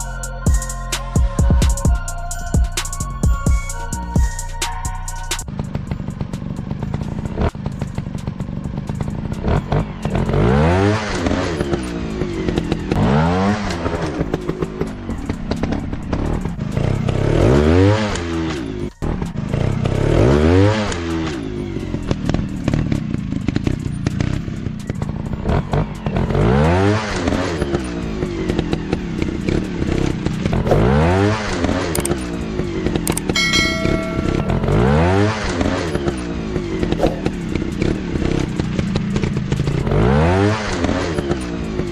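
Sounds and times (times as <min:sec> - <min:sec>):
dirt bike engines revving: 0:05.5 - 0:41.9
low engine drone: 0:29.1 - 0:39.9.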